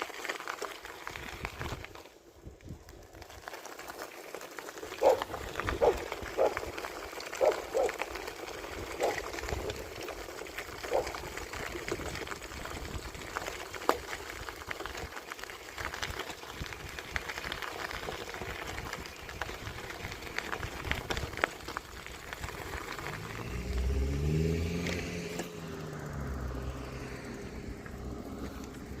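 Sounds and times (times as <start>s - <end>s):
bicycle rolling: 0.0s - 29.0s
wind noise: 1.1s - 3.3s, 5.0s - 6.8s, 10.9s - 13.8s, 15.8s - 24.2s
motor vehicle engine: 20.8s - 29.0s.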